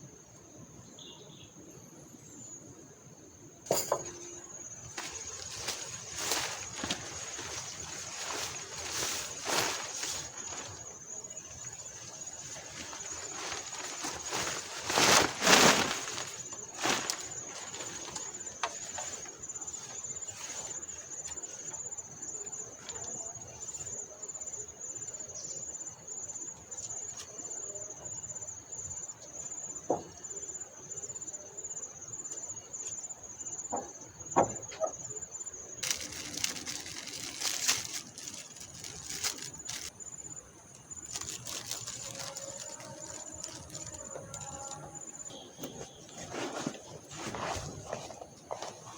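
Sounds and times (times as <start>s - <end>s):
insects droning: 0.0s - 48.9s
rustling: 4.8s - 21.8s, 35.8s - 48.9s.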